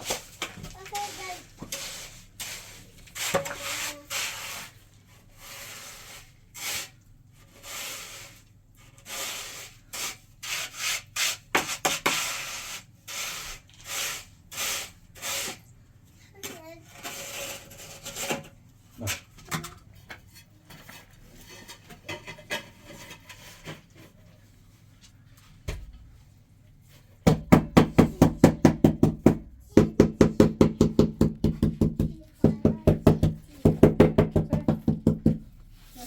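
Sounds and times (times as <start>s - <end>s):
fast hollow knocking: 27.2s - 35.5s.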